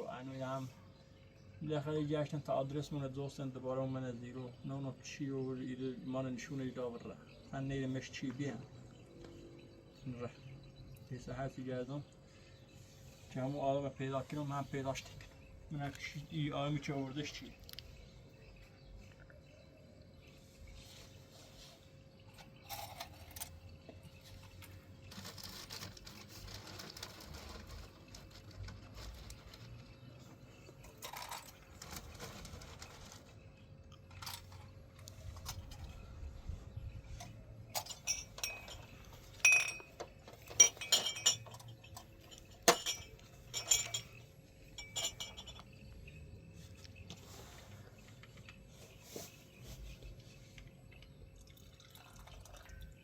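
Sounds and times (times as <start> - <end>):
hard objects clinking together: 37.7 - 45.8.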